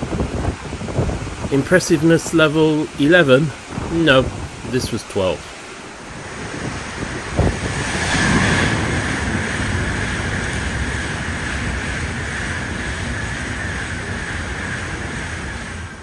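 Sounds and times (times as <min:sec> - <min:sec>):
torrential rain: 0:00.0 - 0:16.0
high-speed train rushing through: 0:01.0 - 0:16.0.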